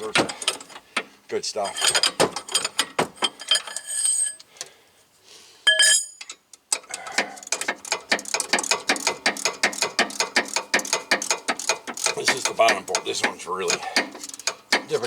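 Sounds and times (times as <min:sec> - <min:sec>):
ringing metallic clink: 0:05.7 - 0:06.3
ratchet wrench clicking: 0:06.2 - 0:14.9.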